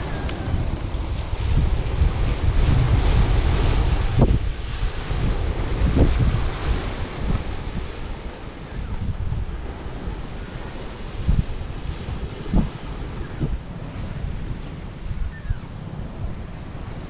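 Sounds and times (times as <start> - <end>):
wind buffeting microphone: 0.0 - 17.0
insect chirping: 4.4 - 13.8, 16.3 - 17.0.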